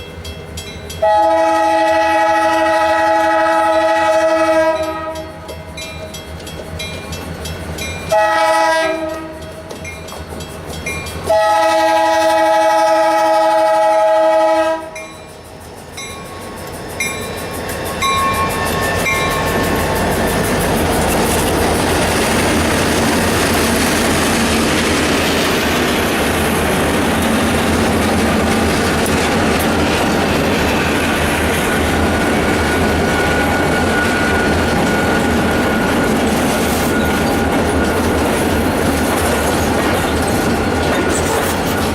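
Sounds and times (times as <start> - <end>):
diesel locomotive rumble: 0.0 - 41.9
train wheels rattling on rails: 0.0 - 41.9
locomotive air horn blast: 1.0 - 5.3, 8.1 - 9.4, 11.3 - 15.0, 18.0 - 19.8.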